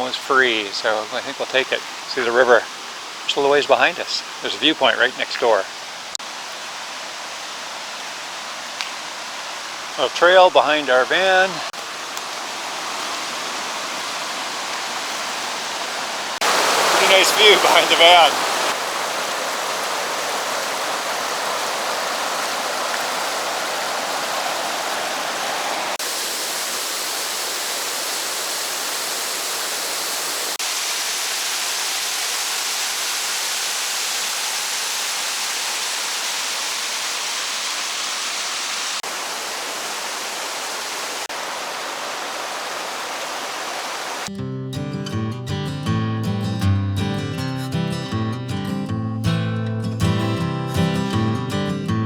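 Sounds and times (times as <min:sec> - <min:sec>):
rushing river water: 0:00.0 - 0:44.3
strummed acoustic guitar music: 0:44.3 - 0:52.0.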